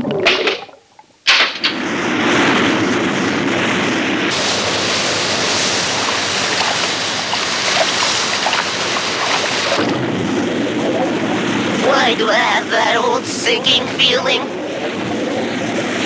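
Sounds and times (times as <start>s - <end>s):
cartoon rushing water: 1.7s - 16.0s.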